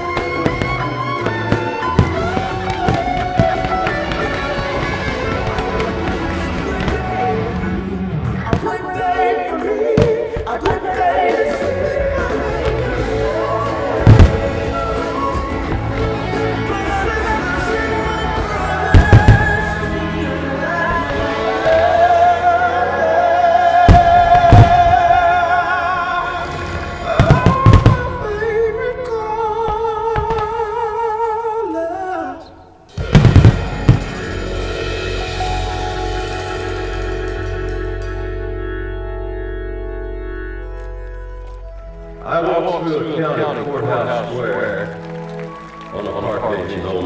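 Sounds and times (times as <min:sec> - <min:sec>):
fireworks bursting: 0:00.0 - 0:22.6, 0:23.8 - 0:25.4, 0:26.4 - 0:28.5, 0:32.9 - 0:37.4
music with singing: 0:00.0 - 0:47.0.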